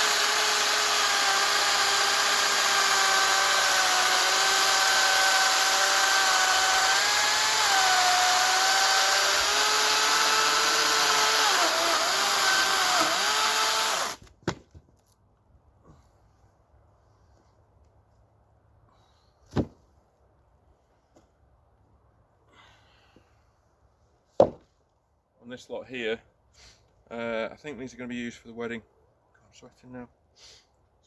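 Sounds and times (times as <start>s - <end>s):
chainsaw cutting log: 0.0s - 14.3s.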